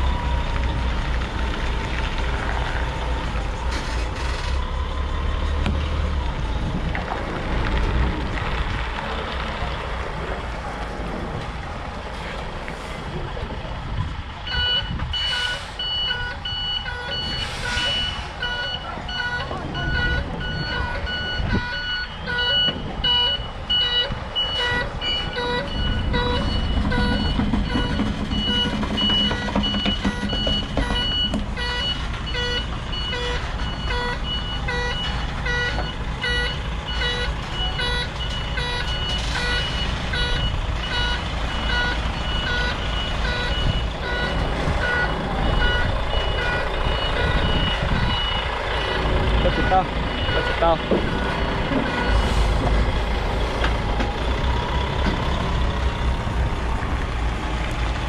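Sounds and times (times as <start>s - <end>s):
truck reversing alarm beeping: 0.0s - 1.5s, 14.4s - 56.6s
diesel truck engine: 0.0s - 58.0s.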